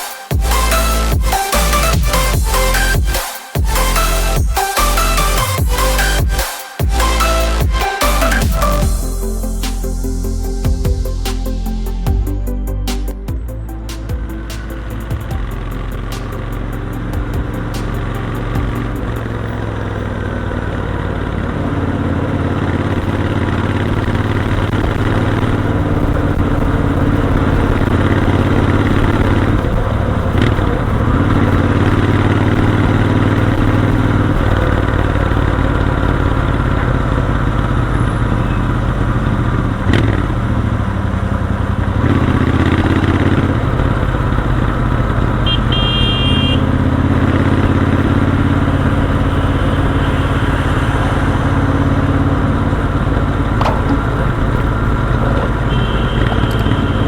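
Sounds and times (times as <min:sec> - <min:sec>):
motorcycle engine at speed: 0:14.0 - 0:57.0
short high beep: 0:45.5 - 0:46.6.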